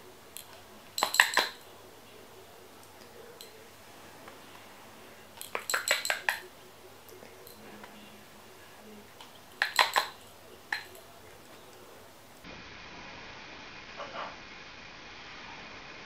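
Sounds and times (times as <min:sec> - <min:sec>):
metallic clinking: 0:00.3 - 0:01.8, 0:02.8 - 0:03.7, 0:05.3 - 0:06.5, 0:09.2 - 0:12.5.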